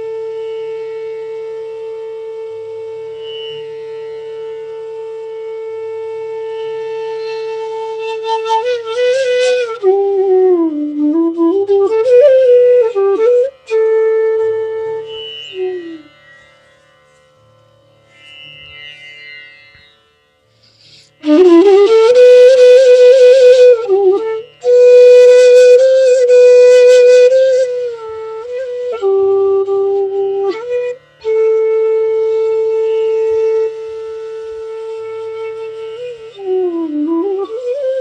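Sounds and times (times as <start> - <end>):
bamboo flute melody: 0.0 - 16.7, 20.8 - 38.0.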